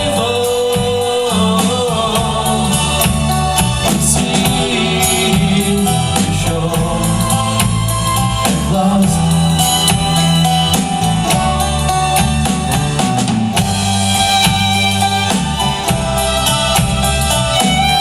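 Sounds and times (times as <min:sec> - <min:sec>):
person singing: 0:00.0 - 0:13.4
drum kit: 0:00.0 - 0:18.0
guitar: 0:00.0 - 0:18.0.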